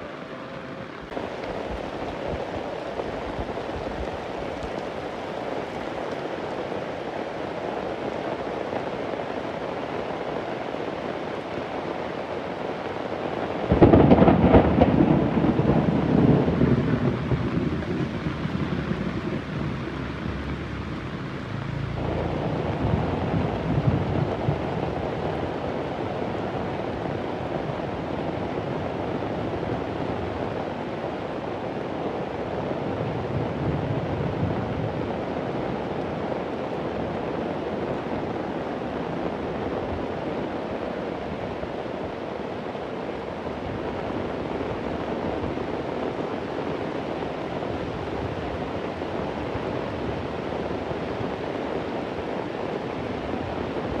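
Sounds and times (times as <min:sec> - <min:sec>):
heavy rain falling: 0:00.0 - 0:54.0
low thunder rumble: 0:13.7 - 0:30.8.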